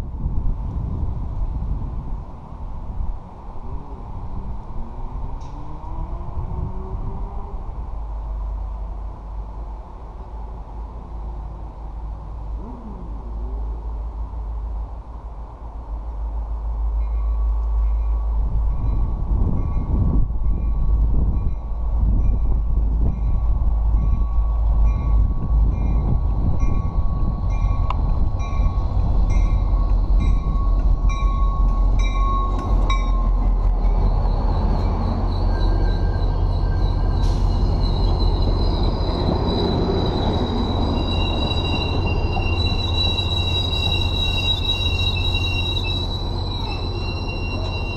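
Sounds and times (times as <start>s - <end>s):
train rumble: 0.0s - 47.9s
wheel squeal: 29.5s - 47.9s.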